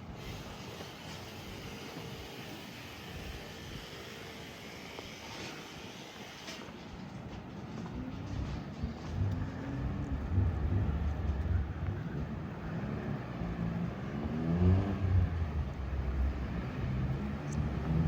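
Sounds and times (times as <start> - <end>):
vehicle engines running rough: 8.0 - 18.0
engine accelerating: 9.1 - 18.0.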